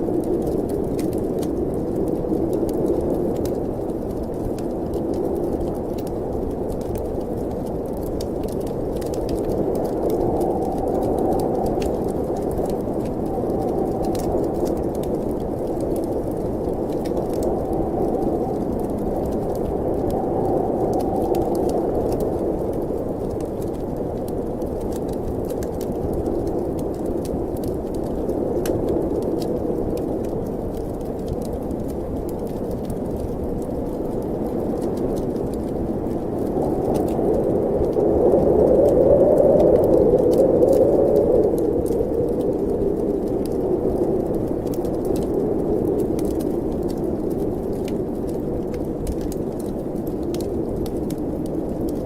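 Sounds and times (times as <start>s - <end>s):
rushing wind: 0.0s - 52.0s
wood fire popping and crackling: 0.0s - 52.0s.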